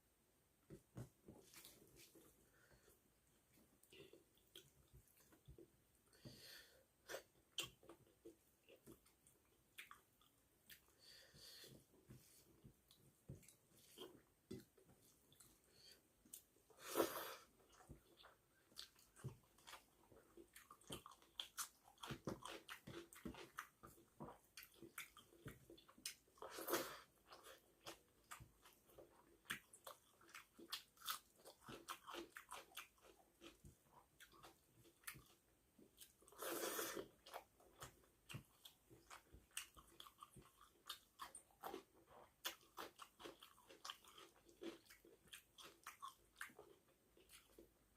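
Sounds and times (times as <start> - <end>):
close chewing: 17.4 - 47.7.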